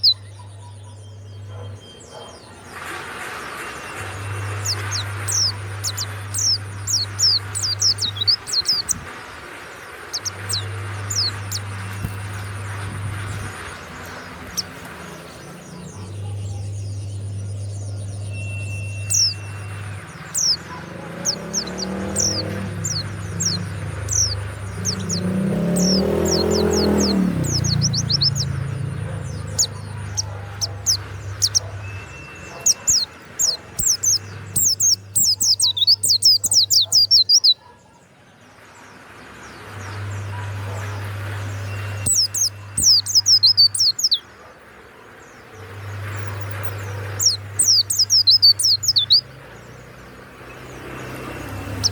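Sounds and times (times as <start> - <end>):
bird singing high chirps: 0.0 - 2.6, 3.7 - 37.8, 39.6 - 44.3, 45.6 - 51.9.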